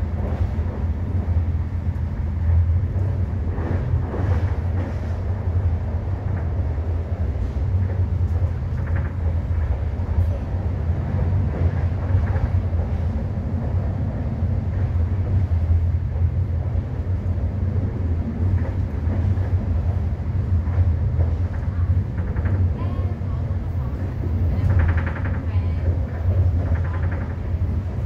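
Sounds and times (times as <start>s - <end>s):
passenger train running: 0.0s - 28.0s.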